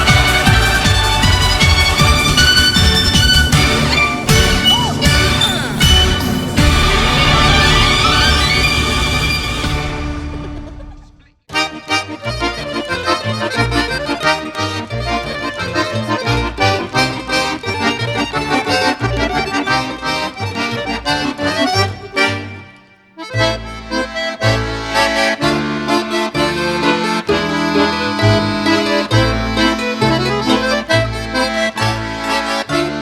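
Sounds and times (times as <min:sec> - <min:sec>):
accordion folk music: 0:00.0 - 0:10.9, 0:11.5 - 0:33.0.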